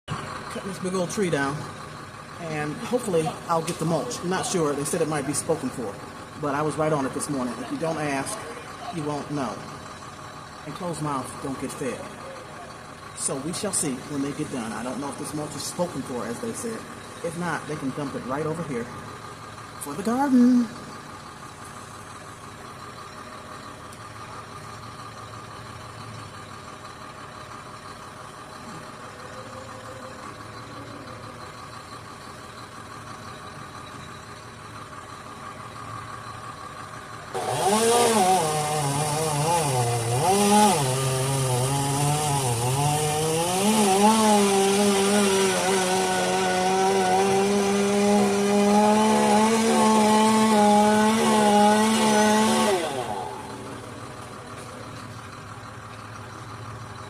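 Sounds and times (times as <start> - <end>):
low engine hum: 0.1 - 57.0
chainsaw cutting wood: 37.3 - 54.6.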